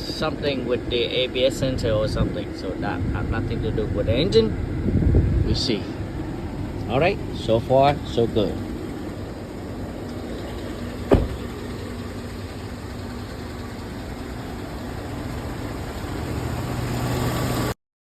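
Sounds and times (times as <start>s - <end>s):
steady low hum: 0.0s - 16.0s
truck engine idling: 0.0s - 17.7s
sharp knock: 11.1s - 11.5s.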